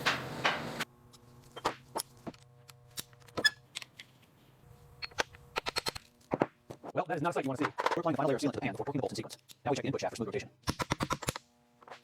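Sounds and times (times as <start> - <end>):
hand tools clicking and tapping: 5.0 - 6.8.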